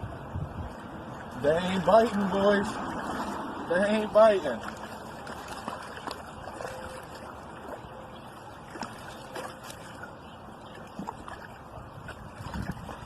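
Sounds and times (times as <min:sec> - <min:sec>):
river water rushing: 0:02.2 - 0:07.8.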